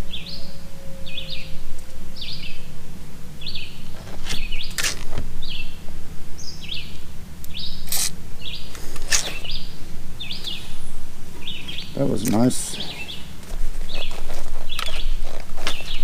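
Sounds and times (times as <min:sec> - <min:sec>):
bird chirping: 0:00.0 - 0:16.0
steady low hum: 0:00.0 - 0:16.0
hiss or scraping bursts: 0:07.8 - 0:08.2.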